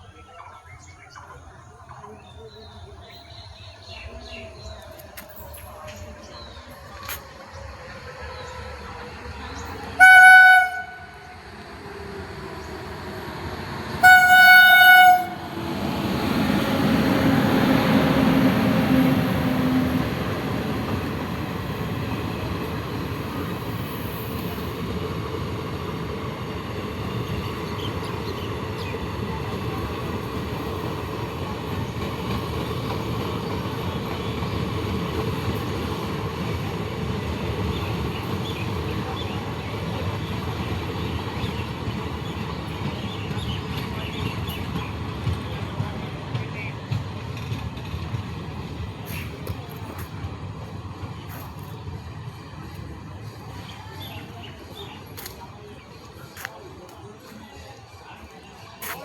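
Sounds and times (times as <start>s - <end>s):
train running past: 0.0s - 59.0s
locomotive horn blasts: 9.9s - 11.5s, 14.0s - 15.6s.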